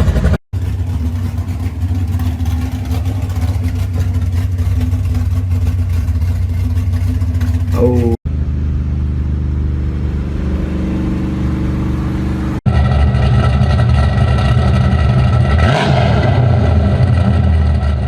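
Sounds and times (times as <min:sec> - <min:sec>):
muscle car engine rumbling: 0:00.0 - 0:18.0.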